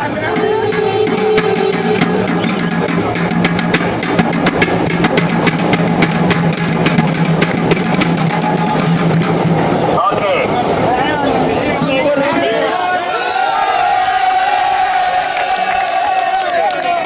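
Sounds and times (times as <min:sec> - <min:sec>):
hand drum beaten fast: 0:00.3 - 0:09.8.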